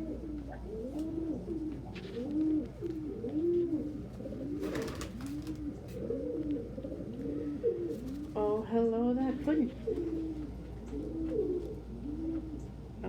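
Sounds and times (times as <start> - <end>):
pigeons cooing: 0.0 - 13.0
wings rustling: 0.4 - 8.6.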